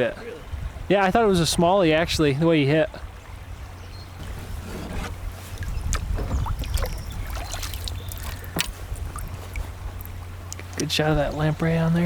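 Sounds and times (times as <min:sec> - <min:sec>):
water lapping against a kayak: 0:02.0 - 0:12.0
small splashes: 0:04.2 - 0:11.0.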